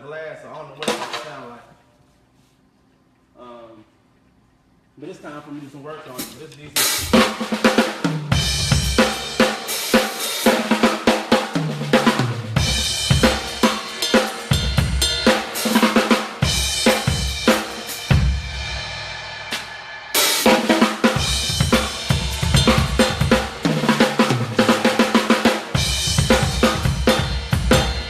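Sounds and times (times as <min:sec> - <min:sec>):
drum kit groove with fills: 0:06.2 - 0:28.0
cymbal crashes: 0:12.6 - 0:28.0.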